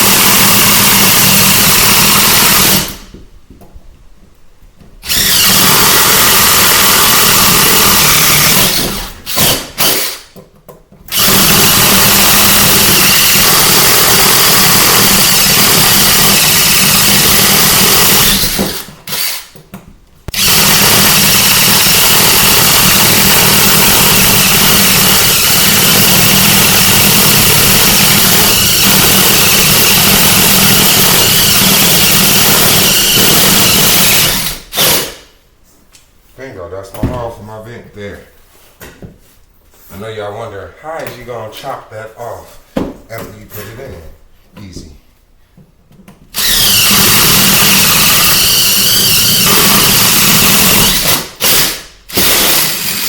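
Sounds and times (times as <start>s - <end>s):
power tool cutting through floor: 0.0s - 3.0s, 5.0s - 10.2s, 11.1s - 19.5s, 20.3s - 35.2s, 46.4s - 53.0s.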